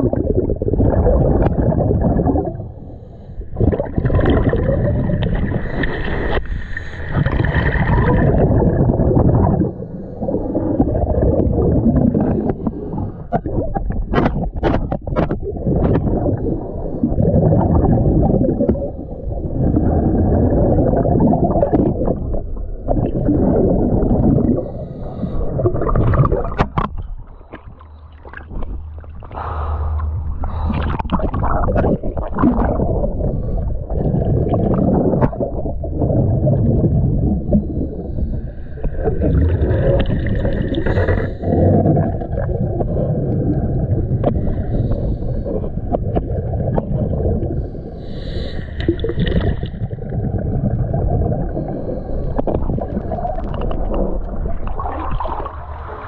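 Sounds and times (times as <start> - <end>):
bubbles gurgling: 0.0 - 56.0
regulator breathing underwater: 2.3 - 8.5, 9.2 - 13.6, 23.3 - 35.6, 36.6 - 43.4, 44.0 - 46.2, 47.4 - 50.2, 51.2 - 54.5.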